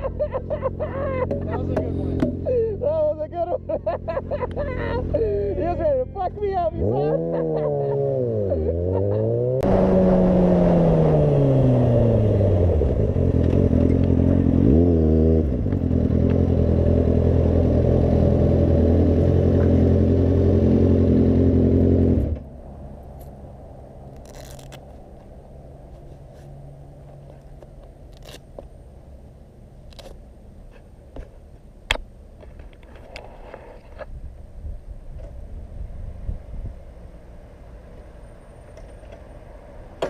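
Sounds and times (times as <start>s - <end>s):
motorcycle engine: 0.0s - 2.5s, 6.3s - 23.4s.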